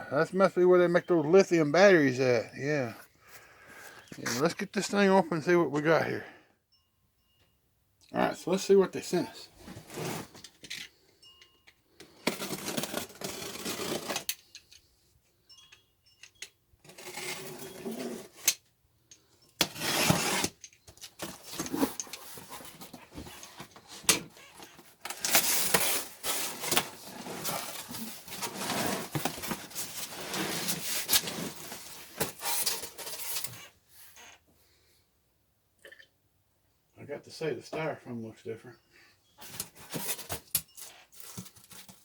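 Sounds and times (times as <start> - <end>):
cardboard box rustling and tearing: 12.3 - 14.3, 19.7 - 33.5, 39.6 - 42.0.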